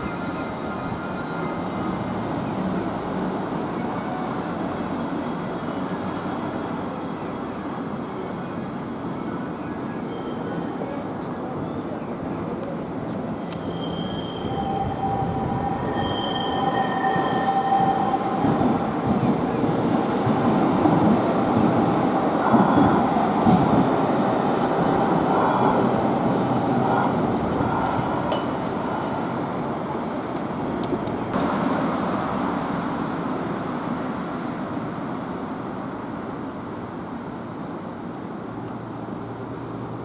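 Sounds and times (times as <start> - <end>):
tram wheels squealing on rails: 0.0 - 7.7, 8.5 - 19.0, 22.4 - 23.7, 24.8 - 30.4
tram rumbling: 0.0 - 40.0.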